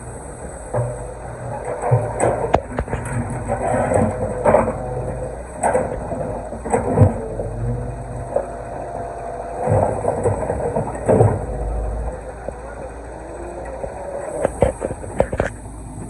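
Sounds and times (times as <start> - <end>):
excavator engine running: 0.0 - 16.0
stones knocking and scraping: 13.8 - 15.6.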